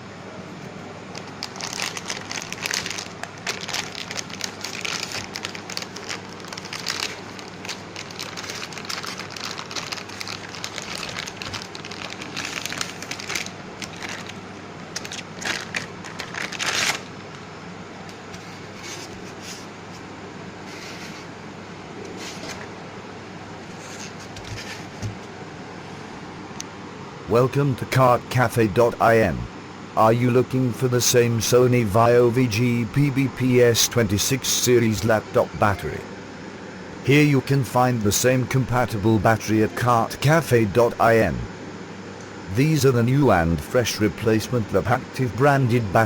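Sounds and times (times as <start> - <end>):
steady low hum: 0.0 - 46.0
crinkling and rustling handling: 1.1 - 17.4.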